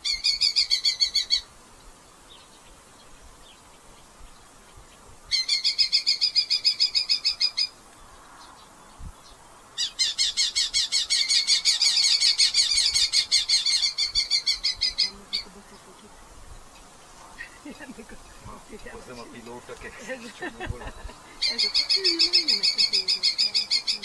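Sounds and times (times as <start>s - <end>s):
falcon calling rapidly: 9.8s - 16.2s, 20.0s - 24.0s.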